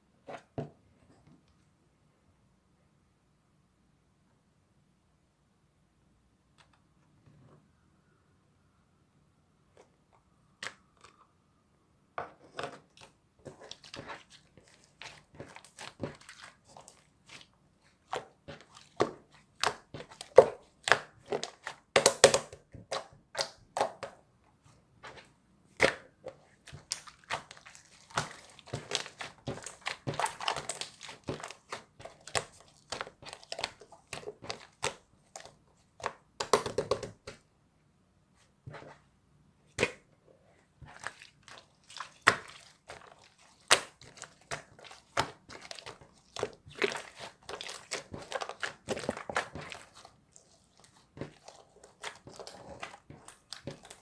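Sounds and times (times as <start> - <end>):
slime squished by hand: 25.8 - 37.4, 40.8 - 54.0.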